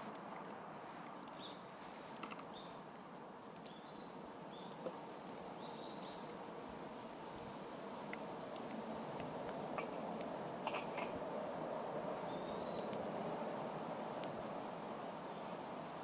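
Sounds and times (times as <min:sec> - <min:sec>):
outdoor hiss: 0:00.0 - 0:16.0
faint clicks: 0:00.1 - 0:01.4, 0:02.1 - 0:03.8, 0:08.0 - 0:11.1, 0:12.7 - 0:13.1, 0:14.2 - 0:14.4
small bird chirping: 0:03.6 - 0:04.8, 0:05.6 - 0:06.3, 0:09.8 - 0:11.2, 0:12.2 - 0:13.0.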